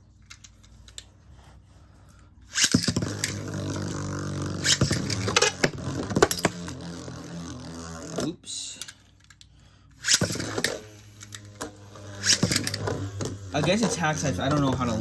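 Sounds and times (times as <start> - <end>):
spinning tops whirring: 2.4 - 9.2, 10.0 - 15.0.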